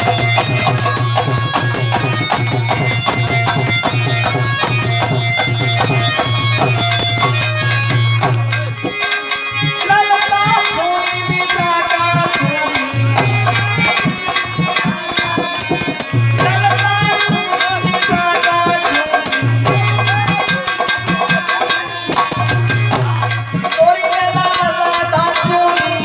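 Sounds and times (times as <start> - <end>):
wavering melodic lead: 0.0 - 9.4
hand drums: 0.0 - 26.0.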